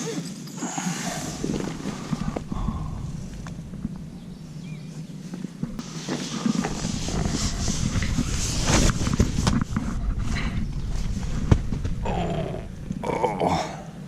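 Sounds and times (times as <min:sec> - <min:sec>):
footsteps rustling and scuffing: 0:04.8 - 0:12.0.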